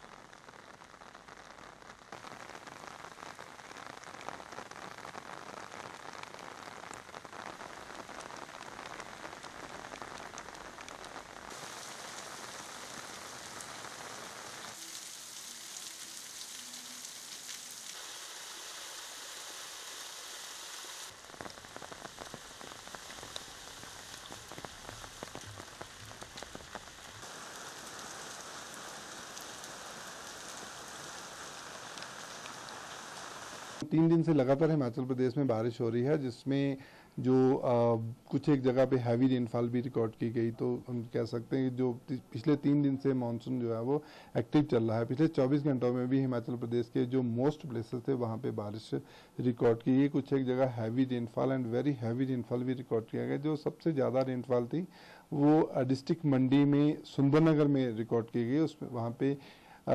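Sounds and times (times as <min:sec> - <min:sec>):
heavy rain splashing: 0:00.0 - 0:33.9.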